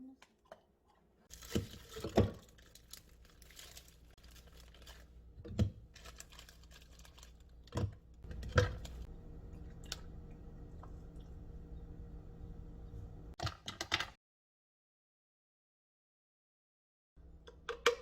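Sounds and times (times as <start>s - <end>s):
rustling and crinkling: 1.3s - 5.2s, 5.9s - 7.5s
faint low hum: 8.3s - 13.4s.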